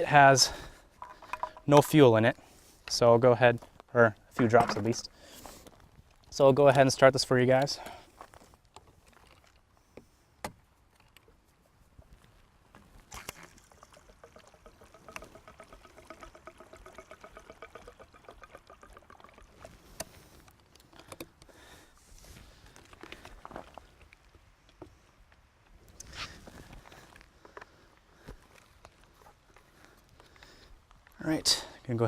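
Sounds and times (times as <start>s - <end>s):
fuel trickling into tank: 0.5s - 1.7s, 13.0s - 21.8s.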